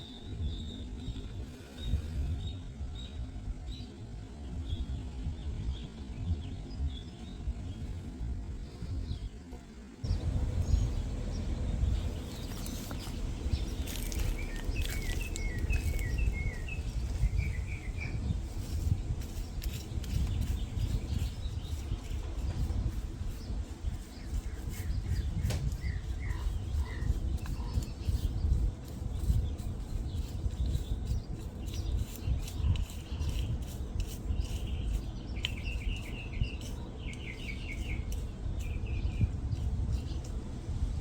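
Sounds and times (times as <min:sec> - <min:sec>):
loud low rumble: 0:10.1 - 0:17.0
small birds chirping: 0:10.1 - 0:40.5.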